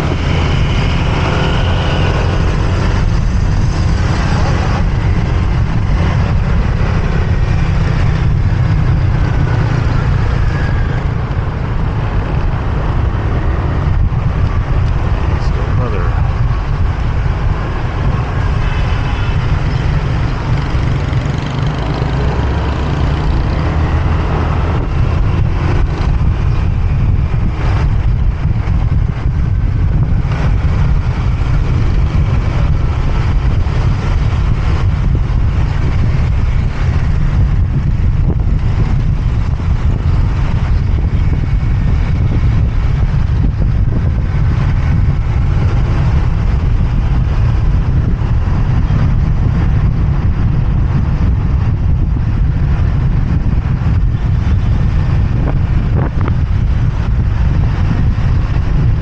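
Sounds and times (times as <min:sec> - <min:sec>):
motorbike engine: 0:00.0 - 0:59.0
traffic: 0:00.0 - 0:59.0
wind rumble on microphone: 0:00.0 - 0:59.0.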